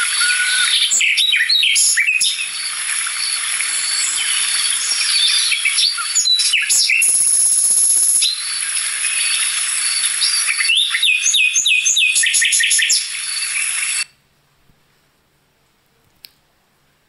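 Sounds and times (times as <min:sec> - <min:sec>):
birds chirping and singing: 0:00.0 - 0:14.0.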